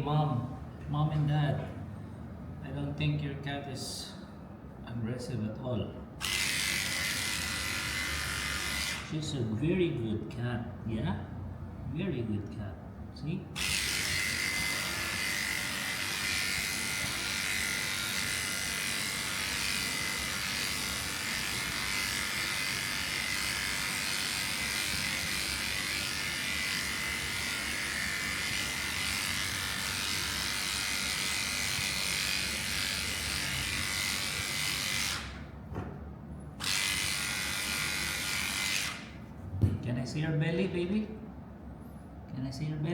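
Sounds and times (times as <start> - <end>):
electric clippers buzzing: 6.2 - 9.1, 13.6 - 35.5, 36.6 - 39.2.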